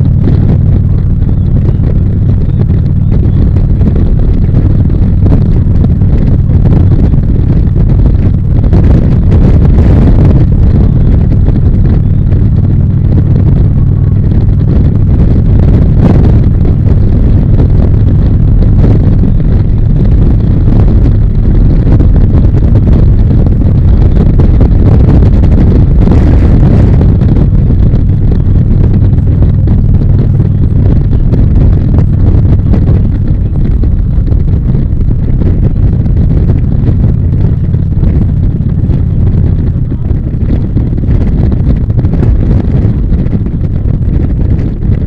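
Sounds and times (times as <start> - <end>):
motorcycle engine running: 0.0 - 45.0
wind rushing over microphone: 0.0 - 45.0.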